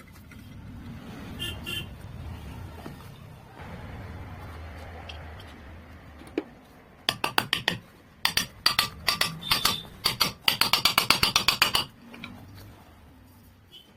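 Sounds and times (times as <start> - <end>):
metal-on-metal tapping and clinking: 7.1 - 12.4.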